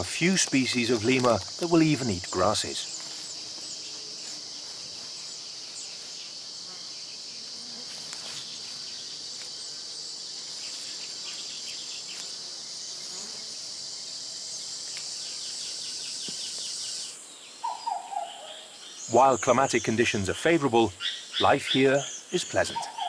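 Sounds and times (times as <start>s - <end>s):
rapid ticks: 0.0s - 2.1s
insects droning: 0.0s - 23.0s.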